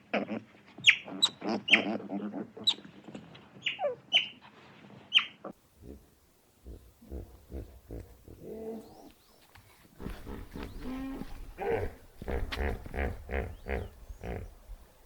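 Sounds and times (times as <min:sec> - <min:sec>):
farm animal calling: 0:00.1 - 0:02.9, 0:03.6 - 0:04.4, 0:10.0 - 0:14.6.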